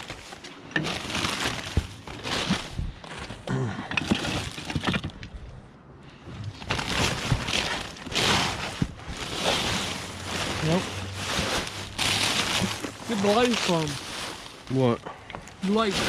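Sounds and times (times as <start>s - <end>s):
hard objects clattering together: 0.0s - 5.3s.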